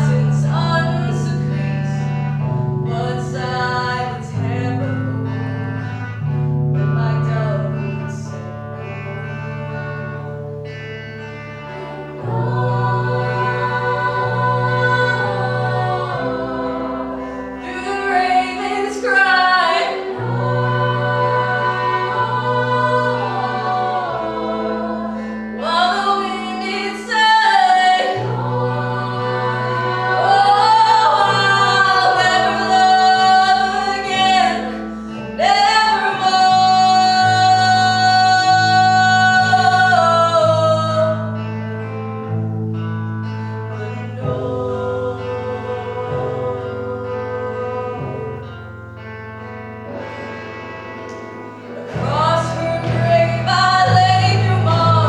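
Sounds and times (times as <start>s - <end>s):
sustained low chords: 8.9s - 27.0s
voices singing held sliding lines: 11.7s - 41.2s, 43.7s - 49.1s, 49.9s - 55.0s.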